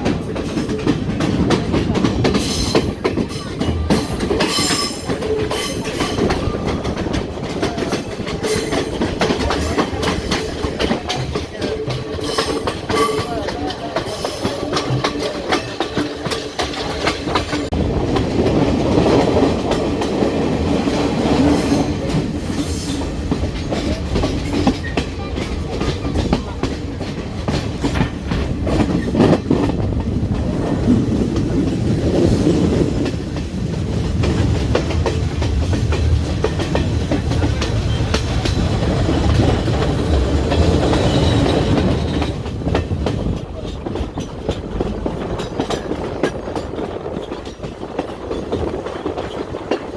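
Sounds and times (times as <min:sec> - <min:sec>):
train rumbling on rails: 0:00.0 - 0:49.9
wheels clicking over rail joints: 0:00.0 - 0:49.9.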